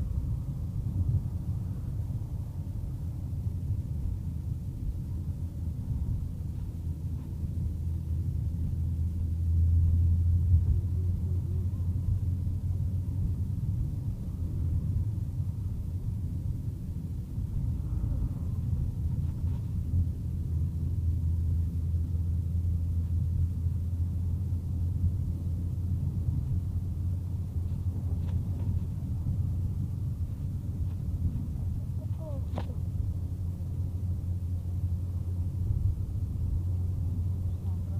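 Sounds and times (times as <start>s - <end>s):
car engine and road noise: 0.0s - 37.9s.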